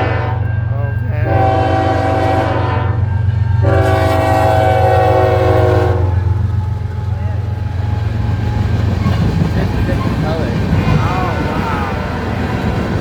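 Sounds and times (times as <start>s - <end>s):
locomotive air horn blasts: 0.0s - 0.4s, 1.2s - 6.4s
passing train rumble: 0.0s - 13.0s.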